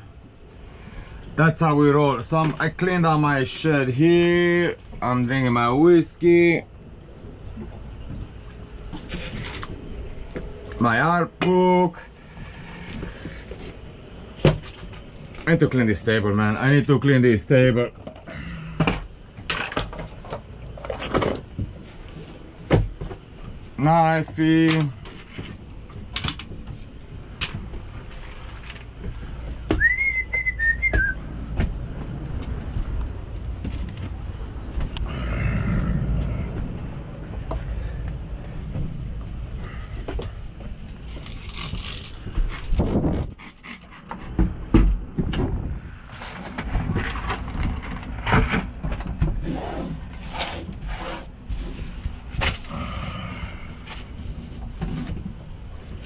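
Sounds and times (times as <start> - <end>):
clutter clicking and knocking: 24.2 - 35.0, 40.1 - 49.4
brief high whistle: 29.8 - 31.2
tabletop scraping: 49.4 - 52.0.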